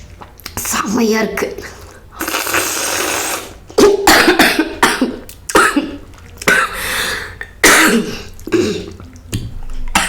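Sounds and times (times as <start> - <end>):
person coughing: 3.8 - 6.8, 7.6 - 9.0.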